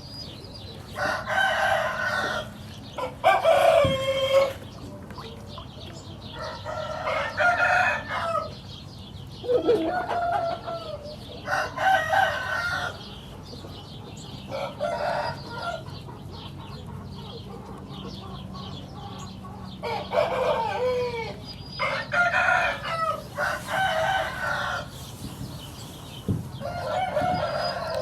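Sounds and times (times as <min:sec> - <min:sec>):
chickens clucking: 0:00.1 - 0:28.0
roosters crowing: 0:00.9 - 0:04.6, 0:06.4 - 0:08.6, 0:09.4 - 0:13.2, 0:14.5 - 0:15.9, 0:19.7 - 0:28.0.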